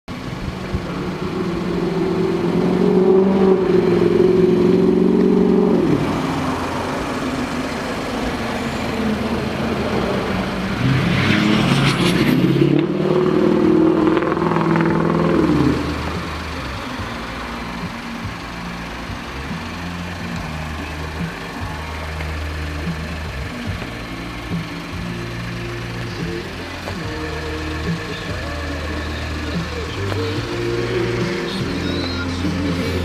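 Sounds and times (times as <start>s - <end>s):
truck engine revving: 0.1s - 33.0s.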